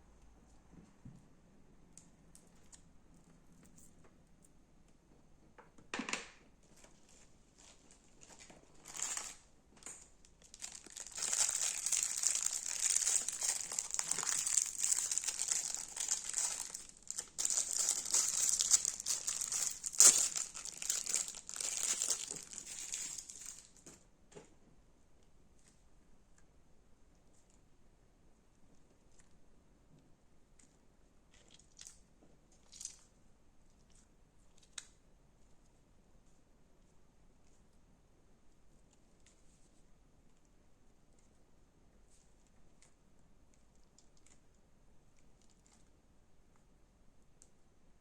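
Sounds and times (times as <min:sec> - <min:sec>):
slime squishing: 0:07.0 - 0:23.9
crunchy slime crackling: 0:07.6 - 0:23.9.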